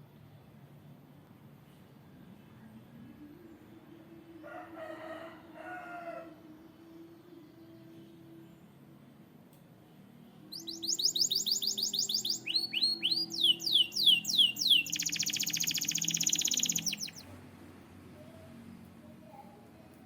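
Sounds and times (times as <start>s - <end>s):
canary singing: 10.5s - 17.3s.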